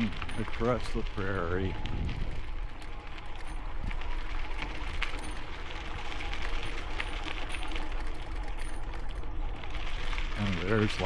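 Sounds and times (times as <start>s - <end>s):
wind buffeting microphone: 0.0s - 4.2s
bicycle rolling over rocky gravel: 0.0s - 11.0s.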